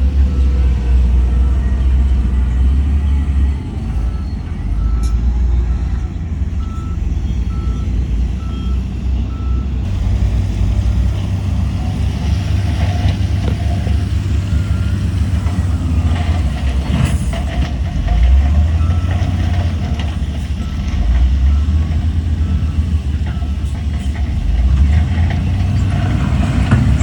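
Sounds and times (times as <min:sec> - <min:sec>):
reversing alarm beeping: 0:00.0 - 0:09.7, 0:13.8 - 0:17.6
diesel machinery rumbling: 0:00.0 - 0:27.0.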